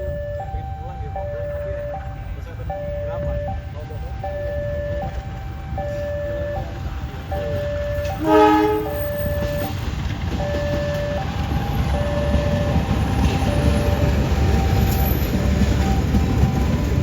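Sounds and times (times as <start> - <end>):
level-crossing warning signal: 0.0 - 17.0
train rumble: 0.0 - 17.0
train horn blast: 7.6 - 9.8.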